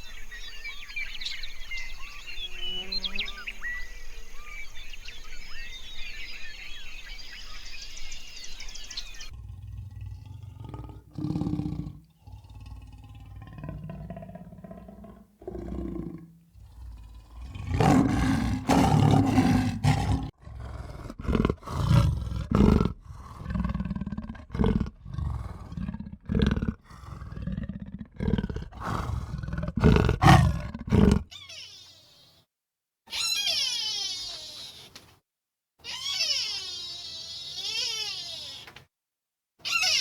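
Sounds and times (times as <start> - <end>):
large animal roaring: 9.3 - 31.3.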